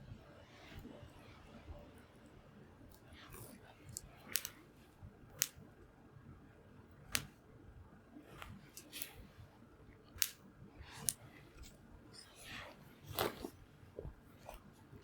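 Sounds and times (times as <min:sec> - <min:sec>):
wood fire crackling: 0:04.3 - 0:04.6.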